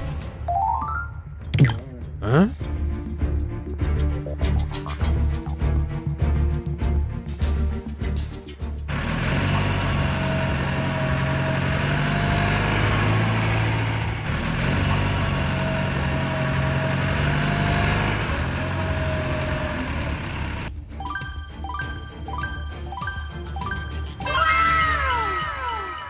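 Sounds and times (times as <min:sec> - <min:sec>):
music: 0:00.0 - 0:09.8, 0:20.7 - 0:26.0
heavy vehicle engine running: 0:08.9 - 0:20.7.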